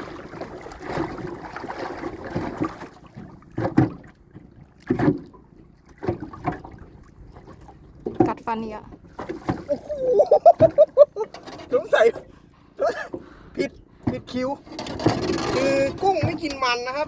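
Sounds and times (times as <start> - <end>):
water and wind rustling: 0.0 - 17.0
dull knocks against boat: 0.8 - 6.8, 8.0 - 9.8, 10.4 - 11.7, 14.0 - 16.9.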